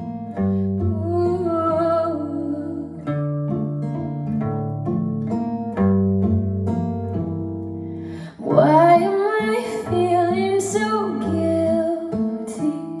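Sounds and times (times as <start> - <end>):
plucked acoustic guitar: 0.0 - 13.0
woman singing: 0.8 - 3.1, 8.2 - 13.0.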